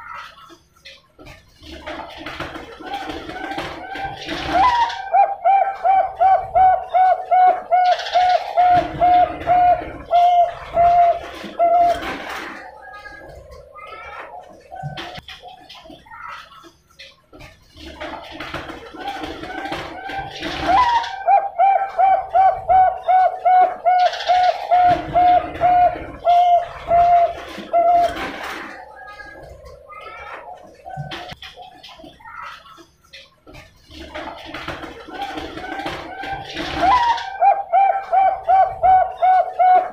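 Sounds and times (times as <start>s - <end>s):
dove rhythmic cooing: 1.6s - 15.6s, 17.7s - 31.7s, 33.8s - 39.9s.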